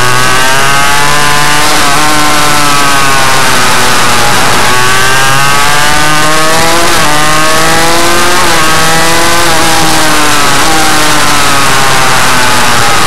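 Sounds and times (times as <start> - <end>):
motorbike engine revving hard: 0.0 - 13.0.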